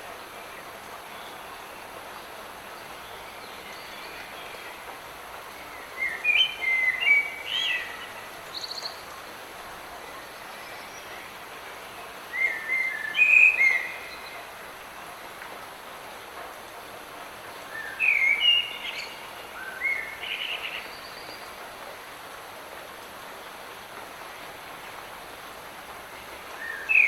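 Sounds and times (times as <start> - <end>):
light rain hissing: 0.0 - 27.0
songbird singing: 0.3 - 9.4, 10.0 - 14.7, 17.5 - 21.8, 26.4 - 27.0.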